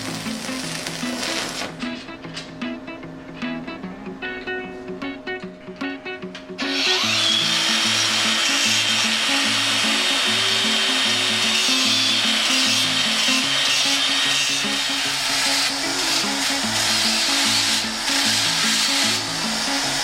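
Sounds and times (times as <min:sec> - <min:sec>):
electric grinder grinding steel: 0:00.0 - 0:01.8, 0:06.6 - 0:20.0
background music with plucked melody: 0:00.0 - 0:20.0.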